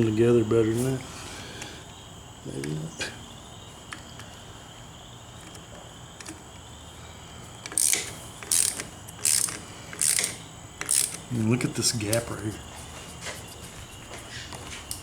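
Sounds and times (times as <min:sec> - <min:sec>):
hand ratchet strokes: 0:07.7 - 0:11.3.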